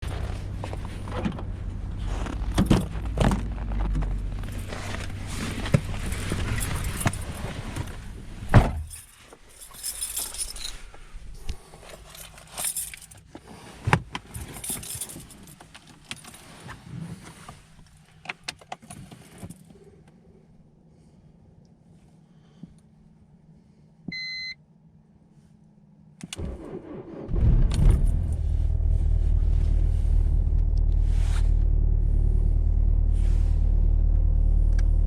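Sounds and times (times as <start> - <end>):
low rumble: 0.0 - 9.0, 26.4 - 35.0
keys jingling: 8.8 - 10.9, 12.0 - 13.2, 14.4 - 16.4.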